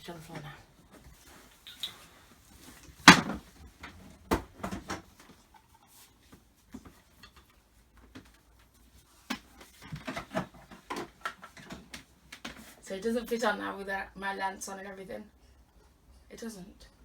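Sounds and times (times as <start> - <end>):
hard plastic knocks and clunks: 3.0 - 3.5
loud thump: 3.1 - 3.4.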